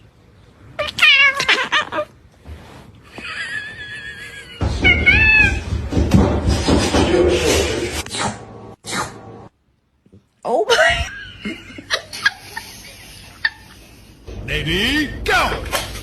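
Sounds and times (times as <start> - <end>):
cat meowing: 0.8 - 2.2, 4.7 - 5.7.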